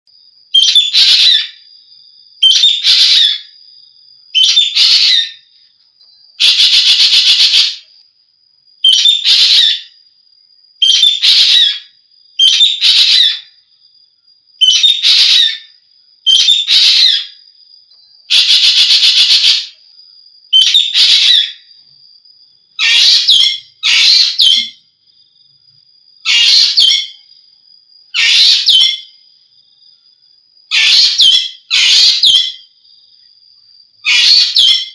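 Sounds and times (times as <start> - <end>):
bird harsh call: 4.4 - 5.4, 12.4 - 13.5, 14.6 - 15.6, 16.3 - 17.3, 22.8 - 24.8, 26.3 - 27.1, 28.2 - 29.0, 30.7 - 32.5, 34.1 - 34.9.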